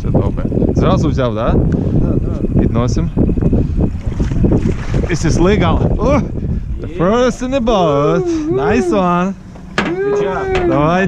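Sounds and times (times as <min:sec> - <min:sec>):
boat and water noise: 0:00.0 - 0:11.0
wind buffeting microphone: 0:00.0 - 0:11.0
short knocks: 0:09.5 - 0:10.7.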